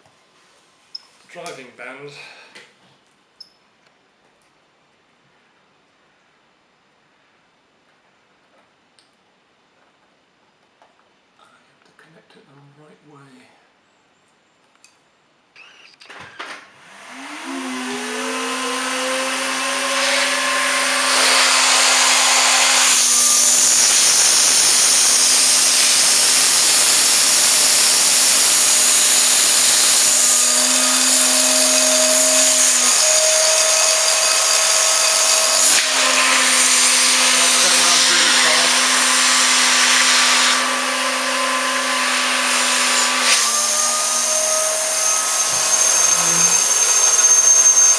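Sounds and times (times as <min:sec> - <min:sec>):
vacuum cleaner motor humming: 0:16.8 - 0:47.9.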